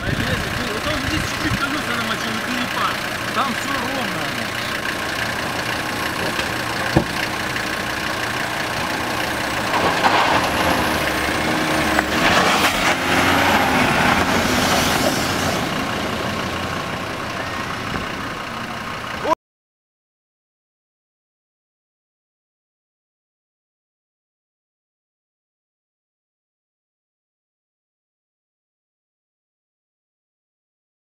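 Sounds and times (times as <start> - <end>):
suv engine running under load: 0.0 - 19.4.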